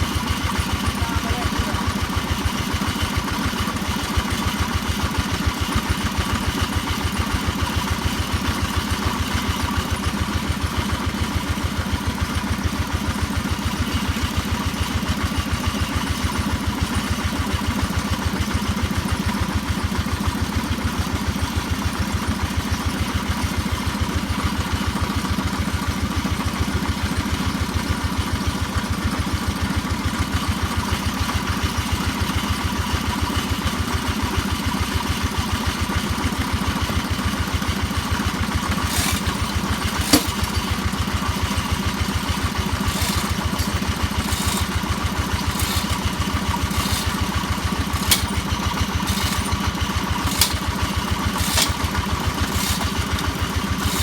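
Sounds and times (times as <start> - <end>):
drilling machine engine running: 0.0 - 7.5, 36.5 - 54.0.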